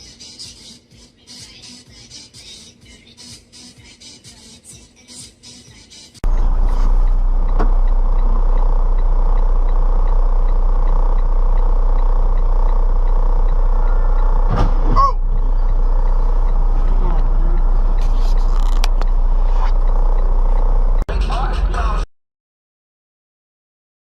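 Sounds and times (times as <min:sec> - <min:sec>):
vehicle engine and road rumble: 0:06.2 - 0:21.1
faint regular ticking: 0:06.3 - 0:14.5, 0:15.2 - 0:18.0, 0:18.8 - 0:21.1.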